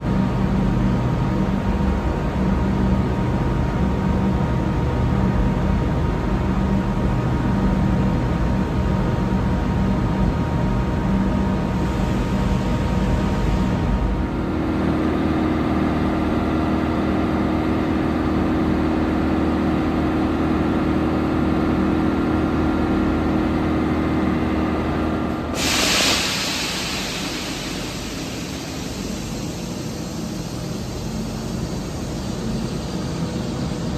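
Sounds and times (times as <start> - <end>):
train equipment humming: 0.2 - 33.9
loud hiss: 25.4 - 33.9.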